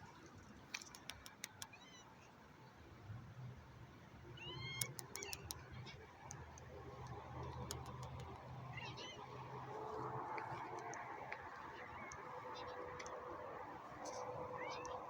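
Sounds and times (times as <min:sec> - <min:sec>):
light clicks: 0:00.7 - 0:01.8, 0:04.8 - 0:08.5
cat meowing: 0:08.7 - 0:09.4, 0:14.4 - 0:15.0.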